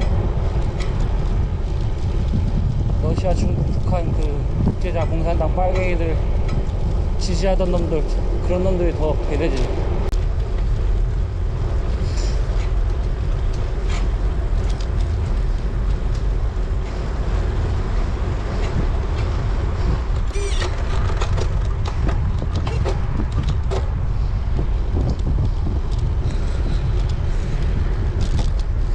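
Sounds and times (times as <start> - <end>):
wind buffeting microphone: 0.0 - 28.9
high squeak: 20.3 - 20.8.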